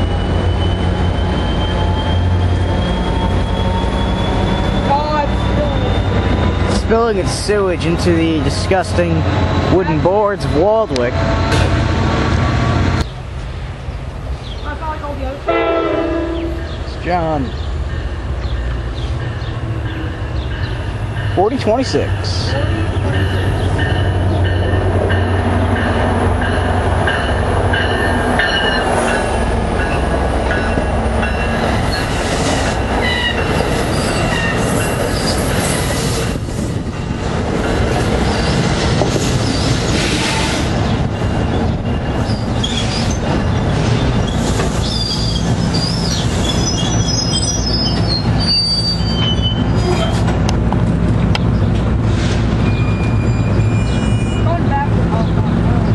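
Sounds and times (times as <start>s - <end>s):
high-pitched wheel squeal: 0.0s - 6.7s, 41.8s - 43.3s, 44.2s - 50.3s, 52.6s - 54.6s
wheels on rail: 0.0s - 55.9s.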